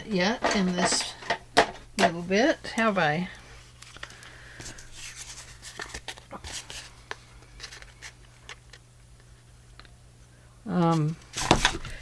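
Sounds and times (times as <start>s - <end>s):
paper rustling: 3.6s - 8.8s, 10.9s - 12.0s.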